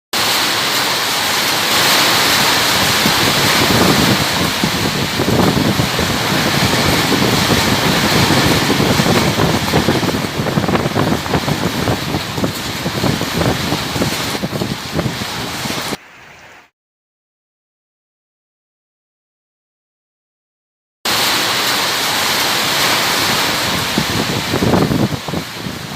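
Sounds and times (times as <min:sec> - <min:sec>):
storm wind: 0:00.2 - 0:16.0, 0:21.1 - 0:25.9
rain: 0:00.2 - 0:16.7, 0:21.1 - 0:25.9
wind buffeting microphone: 0:01.7 - 0:16.0, 0:22.9 - 0:25.9.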